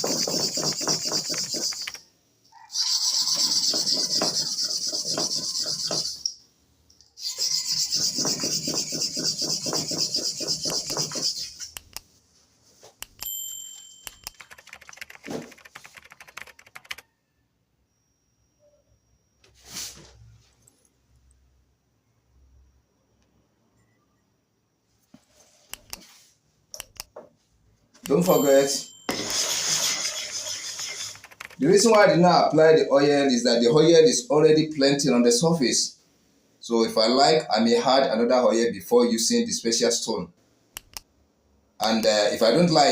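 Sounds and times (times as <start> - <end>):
stone rubbing on sharpening stone: 0.0 - 2.0, 3.4 - 6.3, 7.3 - 11.8, 29.1 - 31.2
brief scrape: 19.5 - 20.4.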